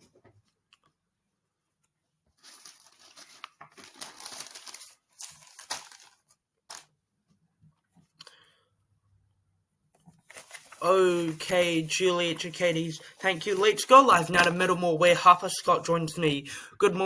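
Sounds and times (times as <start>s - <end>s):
rustling crinkling handling noise: 2.3s - 6.9s, 10.0s - 15.5s.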